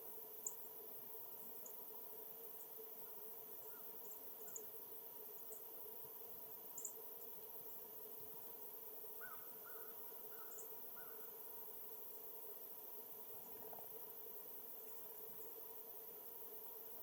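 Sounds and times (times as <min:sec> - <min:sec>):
faint bird calls: 0:09.2 - 0:11.4.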